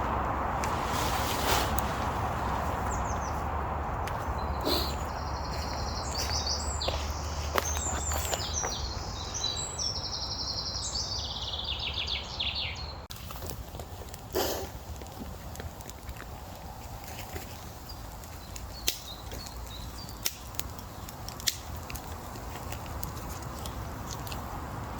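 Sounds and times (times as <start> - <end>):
songbird trilling: 4.3 - 13.0
sharp snaps: 18.8 - 24.5.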